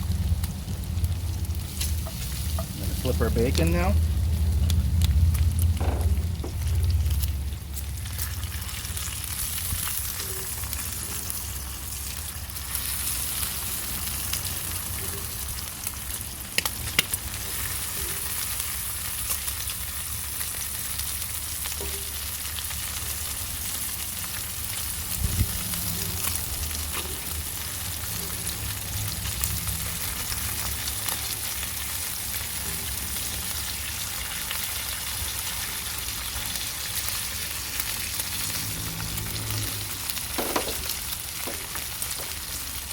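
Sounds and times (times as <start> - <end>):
food sizzling in oil: 0.0 - 42.9
low hum: 4.0 - 8.6
knock: 5.8 - 6.6, 40.4 - 42.3.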